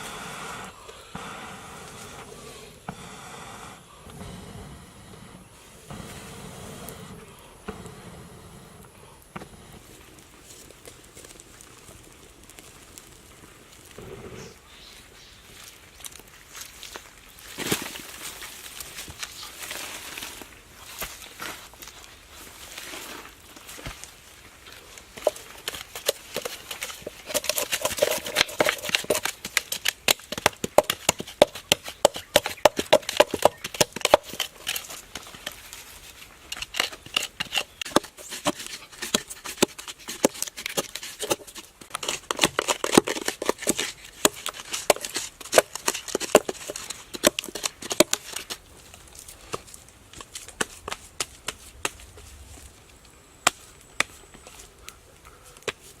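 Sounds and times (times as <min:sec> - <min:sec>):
hand tools chopping wood: 0:25.0 - 0:48.6.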